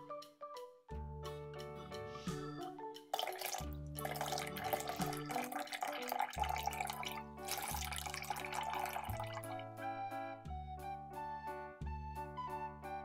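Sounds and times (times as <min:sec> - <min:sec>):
background music: 0:00.0 - 0:13.0
water splashing over ice: 0:03.2 - 0:09.6.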